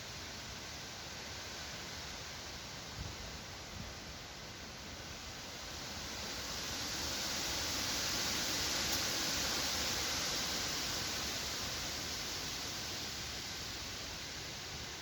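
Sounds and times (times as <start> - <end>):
wind through trees: 0.0 - 15.0.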